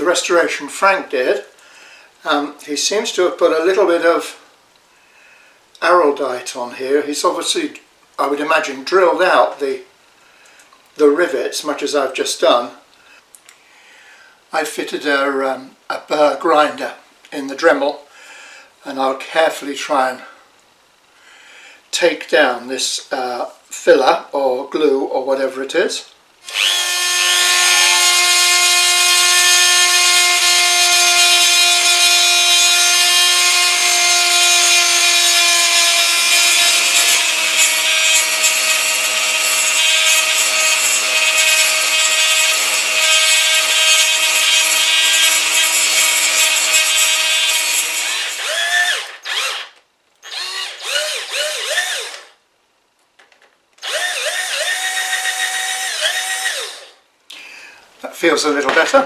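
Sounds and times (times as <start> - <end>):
rotary tool grinding: 26.4 - 52.3, 53.8 - 57.0.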